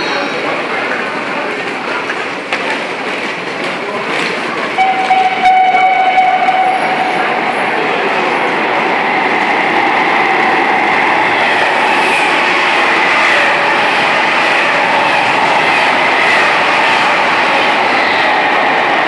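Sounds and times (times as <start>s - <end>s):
high-speed train passing: 0.0s - 19.0s.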